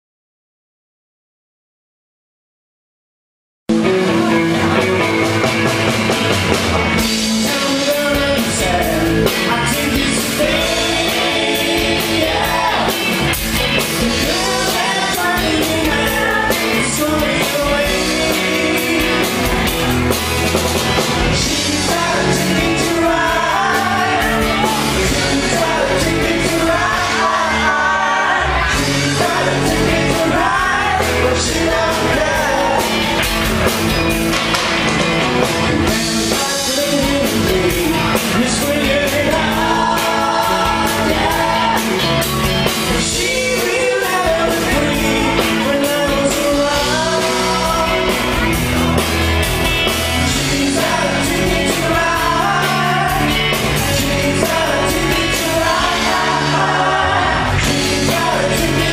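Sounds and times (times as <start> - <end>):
bass guitar: 3.7 - 58.9
drums: 3.7 - 58.9
guitar: 3.7 - 58.9
lead singer singing: 6.9 - 20.2, 20.9 - 33.7, 35.7 - 58.9.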